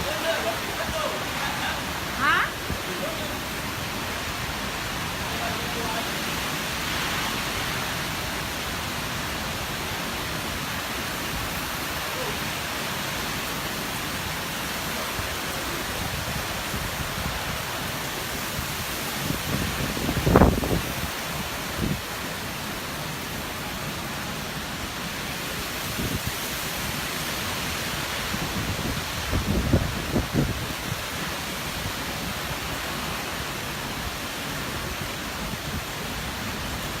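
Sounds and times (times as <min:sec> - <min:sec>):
wind gusts buffeting microphone: 0:00.0 - 0:06.0, 0:15.0 - 0:22.2, 0:25.6 - 0:33.0
strong wind with rain: 0:00.0 - 0:37.0.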